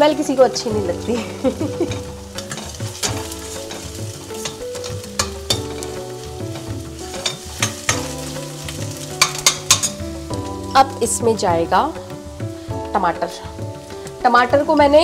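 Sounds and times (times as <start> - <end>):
onions sizzling in oil: 0.0 - 15.0
metal spoon scraping a pan: 1.2 - 10.4.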